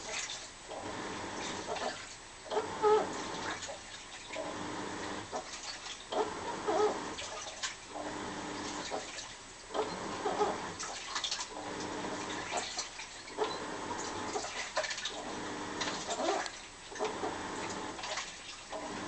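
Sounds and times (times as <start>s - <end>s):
washing machine motor hum: 0.0s - 19.0s
washing machine squeaking: 0.0s - 19.0s
water sloshing: 5.2s - 6.4s, 8.6s - 9.4s, 10.0s - 19.0s.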